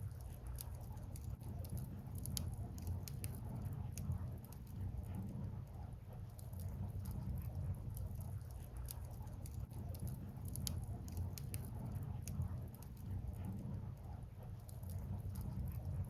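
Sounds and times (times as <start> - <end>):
firewood crackling and popping: 0.0 - 5.0, 6.3 - 13.6
low rumble of fire: 0.0 - 16.0.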